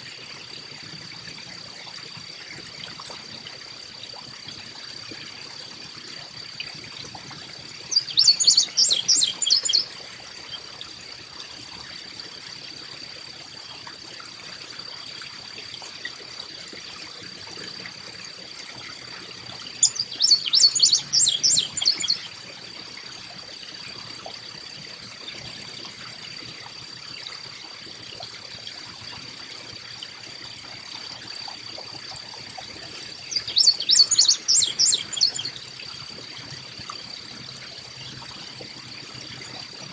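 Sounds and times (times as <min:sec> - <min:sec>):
water trickling: 0:00.0 - 0:39.9
songbird calling: 0:07.8 - 0:09.9, 0:19.7 - 0:22.4, 0:33.0 - 0:35.6.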